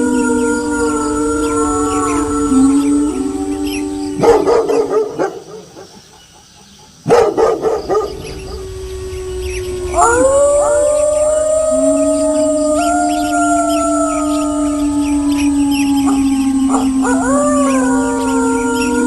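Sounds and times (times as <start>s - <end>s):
wolves howling: 0.0s - 5.8s, 7.1s - 19.0s
dog barking: 4.2s - 5.9s, 7.0s - 8.2s.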